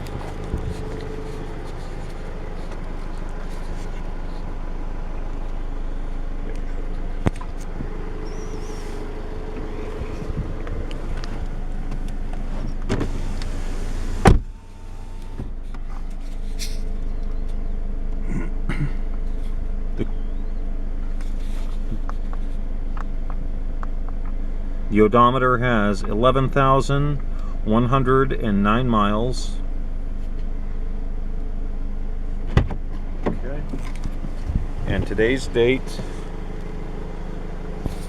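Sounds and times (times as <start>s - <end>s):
car engine running: 0.0s - 18.3s, 29.6s - 38.0s.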